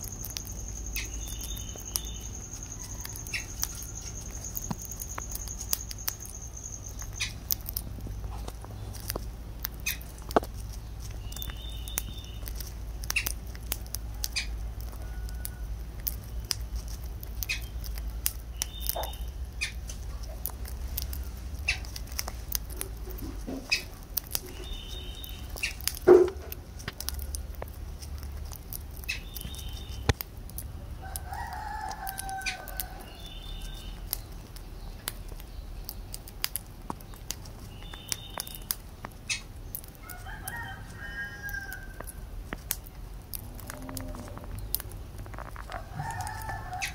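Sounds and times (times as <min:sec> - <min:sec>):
lovebirds chirping: 0:00.0 - 0:46.9
sharp clicks and taps: 0:07.0 - 0:15.0, 0:25.3 - 0:30.7, 0:41.9 - 0:46.6.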